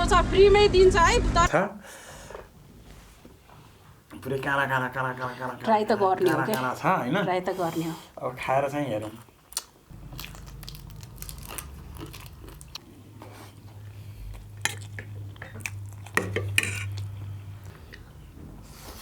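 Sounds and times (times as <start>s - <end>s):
crunchy chewing: 9.0s - 19.0s
steady low hum: 9.9s - 19.0s
utensils clicking against dish: 14.7s - 17.1s.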